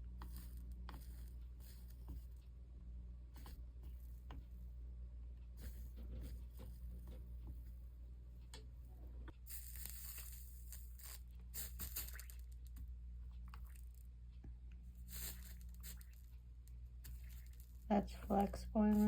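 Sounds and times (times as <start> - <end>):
flux sizzling under soldering iron: 0.0 - 2.4, 5.6 - 7.2, 9.4 - 12.8, 15.0 - 19.0
steady low hum: 0.0 - 19.0.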